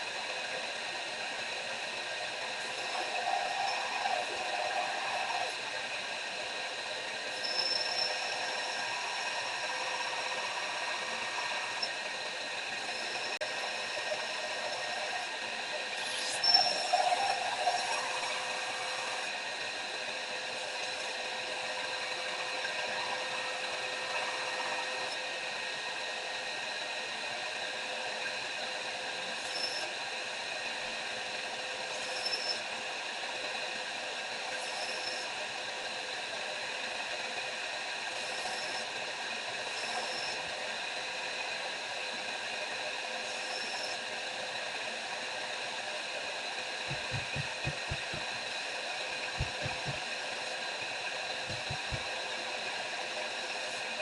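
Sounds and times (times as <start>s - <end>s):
electric grinder whirring: 49.4s - 50.1s.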